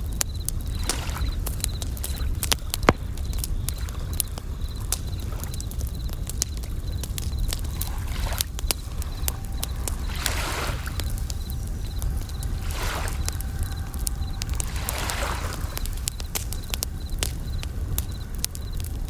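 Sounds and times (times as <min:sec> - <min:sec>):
campfire crackling and popping: 0:00.0 - 0:19.0
crickets chirping: 0:00.0 - 0:19.0
steady low rumble: 0:00.0 - 0:19.0
wave washing in: 0:07.6 - 0:18.2.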